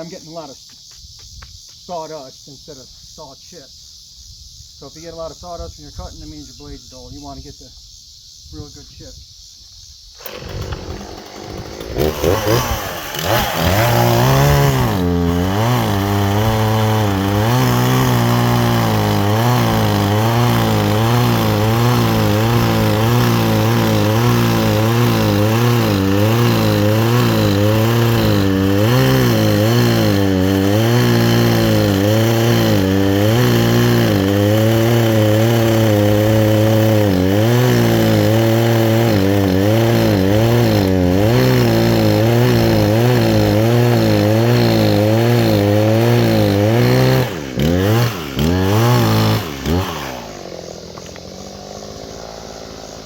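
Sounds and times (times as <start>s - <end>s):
chainsaw cutting wood: 10.2s - 53.0s.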